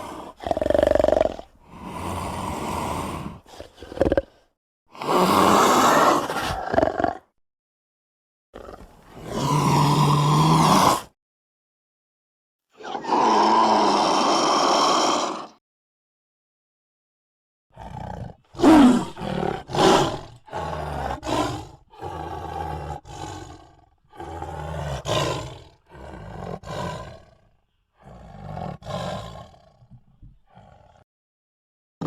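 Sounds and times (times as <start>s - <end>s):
lion roaring and grunting: 17.8s - 31.0s.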